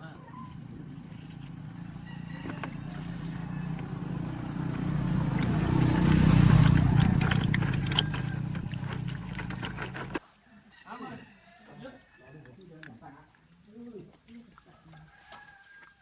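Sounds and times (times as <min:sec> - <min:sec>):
engine low rumble: 0:00.0 - 0:10.2.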